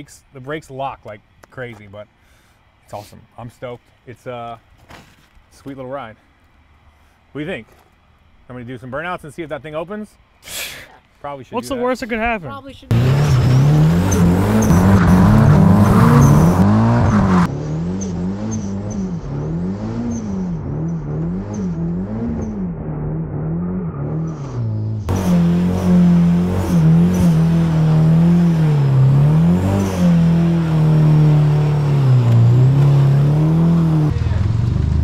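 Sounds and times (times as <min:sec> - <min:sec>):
car engine revving hard: 0:12.9 - 0:35.0.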